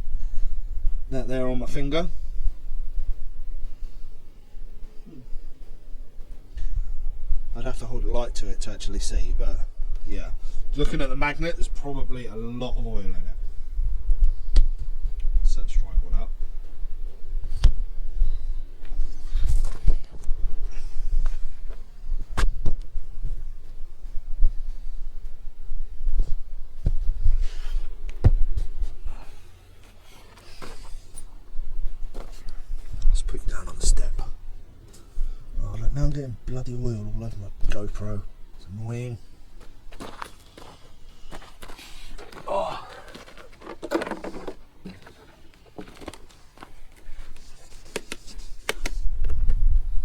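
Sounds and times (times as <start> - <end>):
camera handling rumble and rubbing: 18.8 - 23.0, 39.6 - 49.8
handling clicks and knocks: 42.2 - 47.0.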